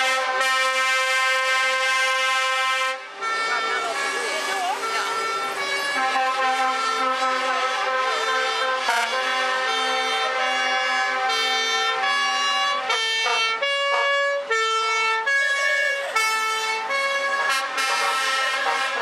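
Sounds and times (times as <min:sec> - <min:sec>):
truck air horns blaring: 0:00.0 - 0:19.0.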